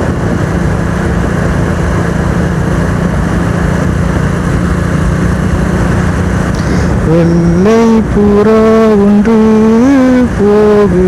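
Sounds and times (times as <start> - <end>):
wind rushing: 0.0 - 8.2
motorcycle engine running: 0.0 - 11.0
road noise: 0.0 - 11.0.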